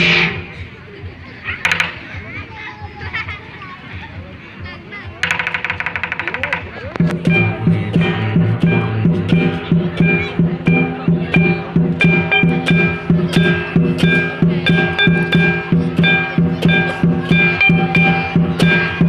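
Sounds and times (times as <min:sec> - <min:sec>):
drum gongs and cymbals playing: 0:00.0 - 0:00.9, 0:05.2 - 0:19.0.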